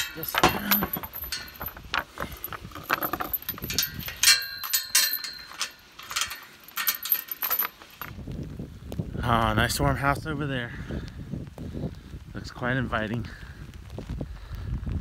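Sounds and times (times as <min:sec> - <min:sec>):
ringing metal clang: 0:00.0 - 0:01.8, 0:02.9 - 0:07.7
metal hardware clanking and rattling: 0:00.0 - 0:08.2.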